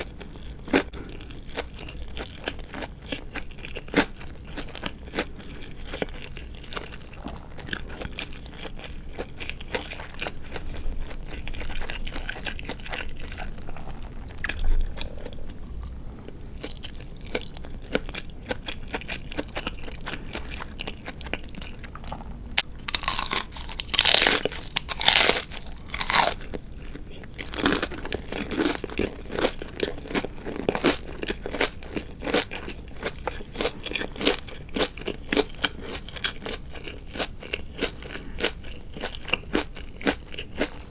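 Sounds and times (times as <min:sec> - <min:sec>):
crunchy chewing of fried chicken: 0:00.0 - 0:40.9
soft mouth sounds: 0:14.3 - 0:16.4.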